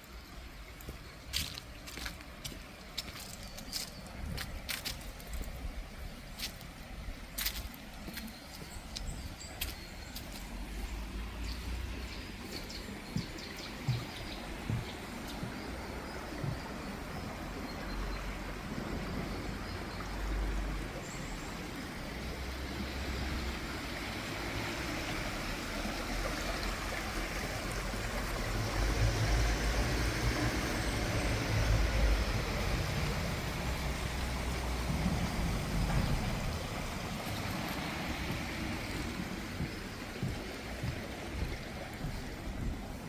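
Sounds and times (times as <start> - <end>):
running water rushing: 0.0 - 43.0
low rumbles: 30.5 - 43.0.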